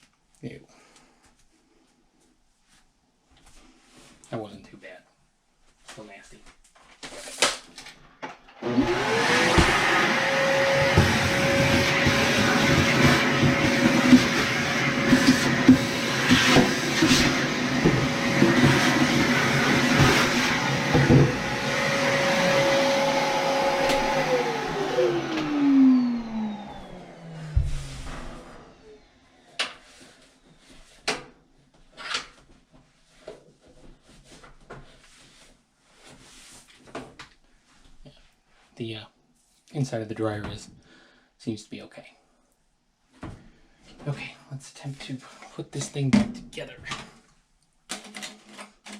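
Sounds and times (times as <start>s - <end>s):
vacuum cleaner motor whining: 8.6s - 29.8s.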